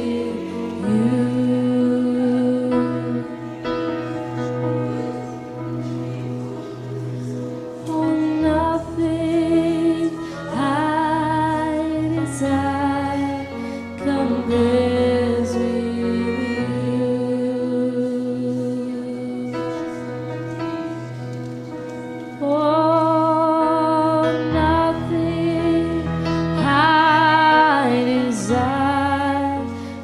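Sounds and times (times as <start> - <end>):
woman singing: 0.0 - 3.8, 7.8 - 20.0, 22.4 - 30.0
keyboard chords: 0.0 - 30.0.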